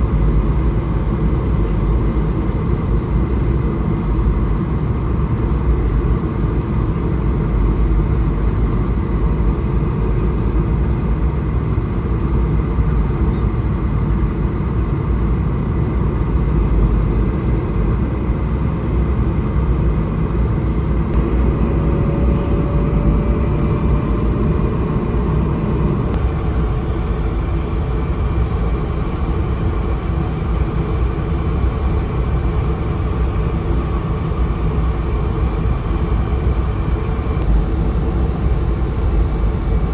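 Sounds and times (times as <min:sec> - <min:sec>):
airplane cabin rumble: 0:00.0 - 0:39.9
steady tones: 0:21.1 - 0:36.2.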